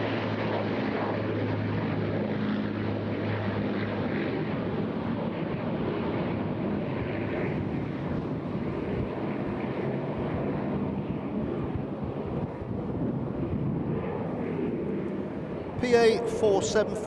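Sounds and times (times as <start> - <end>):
wind rumbling on microphone: 4.4 - 17.0
piston engines droning overhead: 6.3 - 17.0.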